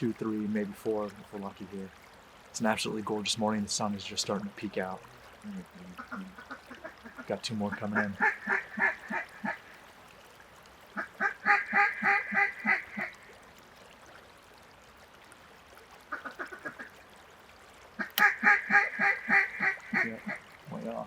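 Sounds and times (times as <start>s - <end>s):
duck call quacks: 11.0s - 13.1s, 18.0s - 20.4s.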